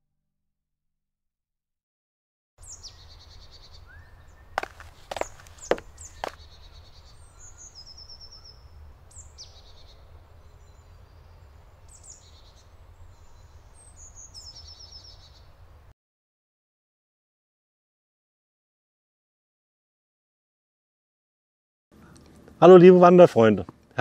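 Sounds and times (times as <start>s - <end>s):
small birds singing: 2.6s - 15.9s
sharp knocks: 4.6s - 6.4s.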